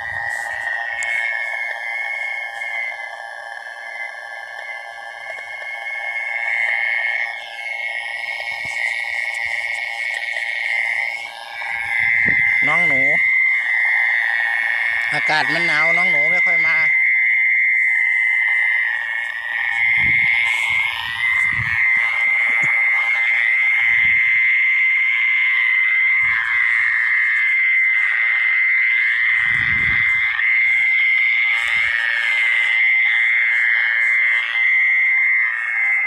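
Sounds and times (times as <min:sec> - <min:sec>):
frogs calling: 0:00.0 - 0:36.0.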